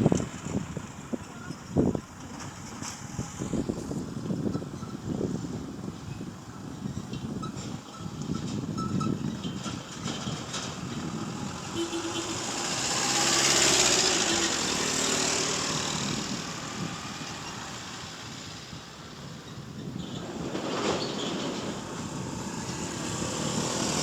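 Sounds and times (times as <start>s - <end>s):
vehicle passing close by: 10.4s - 19.0s, 20.3s - 24.0s.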